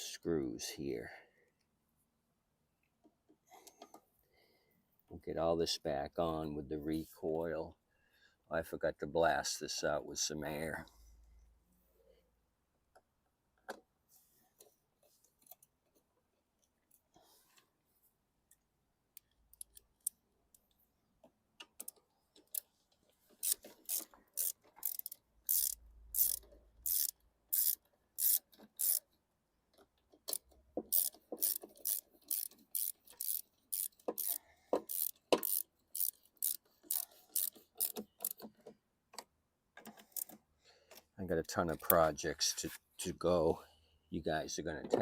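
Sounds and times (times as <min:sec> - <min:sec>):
socket ratchet clicking: 0:23.4 - 0:29.1, 0:30.2 - 0:38.5, 0:39.2 - 0:40.4.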